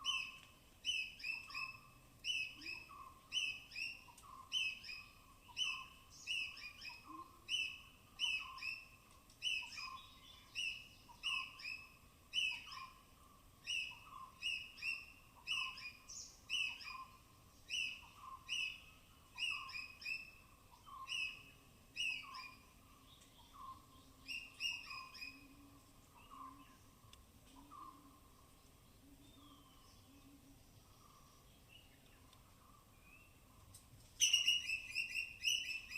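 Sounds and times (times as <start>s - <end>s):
squirrel chirping alarm calls: 19.4s - 22.7s, 24.2s - 25.4s, 34.2s - 35.9s.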